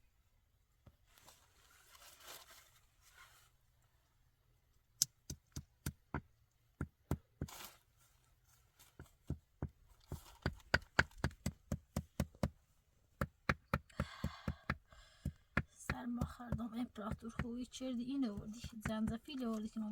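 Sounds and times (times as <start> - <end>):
soft rustle: 0.7 - 4.2, 7.4 - 10.5.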